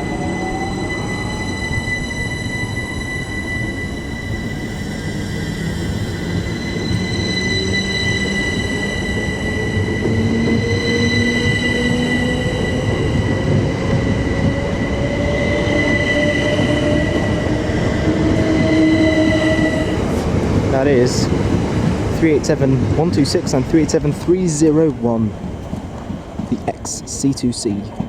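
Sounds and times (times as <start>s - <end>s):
electric train motors whining: 0.0s - 20.7s
steady high squeal: 0.0s - 24.7s
rumble of train wheels: 0.0s - 28.0s.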